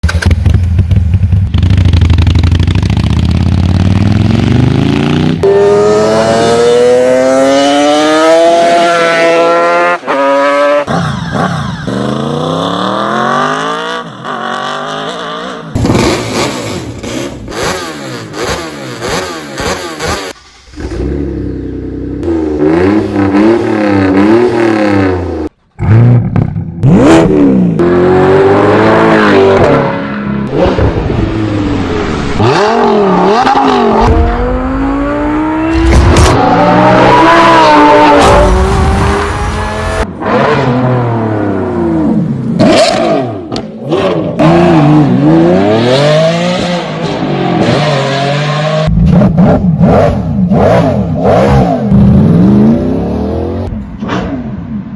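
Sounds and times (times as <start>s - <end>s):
engines revving: 3.4s - 54.8s.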